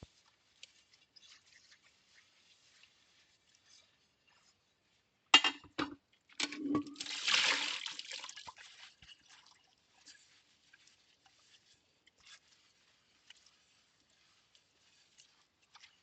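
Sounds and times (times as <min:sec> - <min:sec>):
water splashing and trickling: 0:00.0 - 0:04.3, 0:06.1 - 0:16.0.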